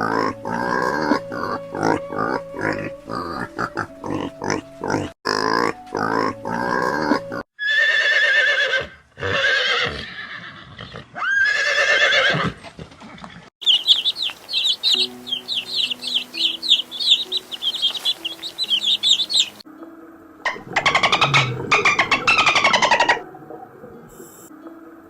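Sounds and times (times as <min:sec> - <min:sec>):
drawn-out animal calls: 0:13.6 - 0:19.6
quick pulsing calls: 0:13.6 - 0:19.6
rapid high chirping: 0:13.6 - 0:19.6.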